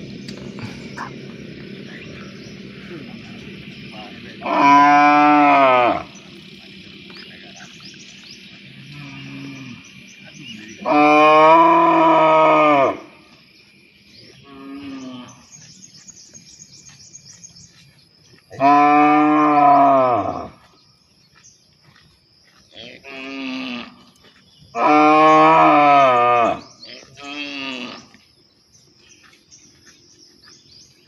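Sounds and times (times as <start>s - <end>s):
cows mooing: 1.8s - 6.2s, 8.8s - 10.0s, 10.8s - 13.2s, 14.4s - 15.5s, 18.5s - 20.6s, 22.7s - 24.0s, 24.8s - 28.2s.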